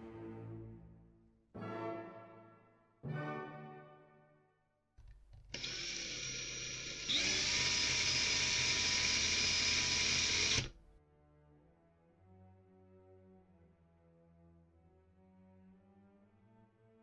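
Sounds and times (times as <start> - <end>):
power drill drilling: 5.4 - 10.8.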